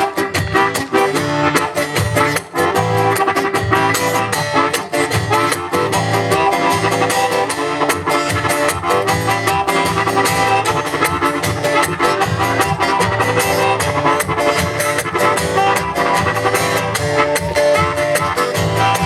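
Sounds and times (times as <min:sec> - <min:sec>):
band playing instrumental music: 0:00.0 - 0:19.0.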